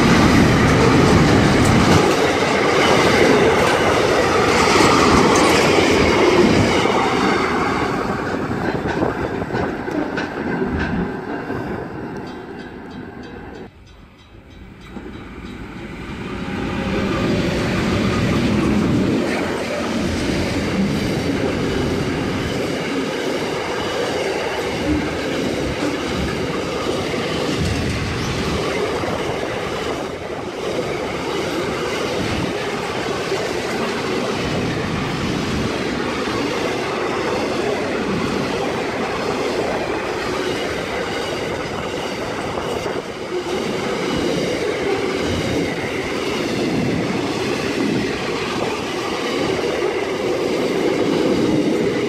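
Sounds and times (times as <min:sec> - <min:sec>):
train wheels rumbling on rail: 0:00.0 - 0:52.0.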